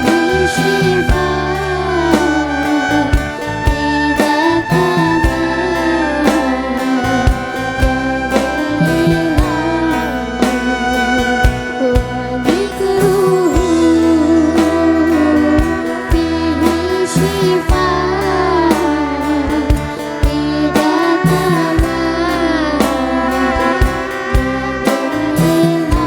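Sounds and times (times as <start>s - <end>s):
low sustained notes: 0.0s - 25.9s
percussion strokes: 0.0s - 26.0s
wavering melody line: 0.0s - 26.0s.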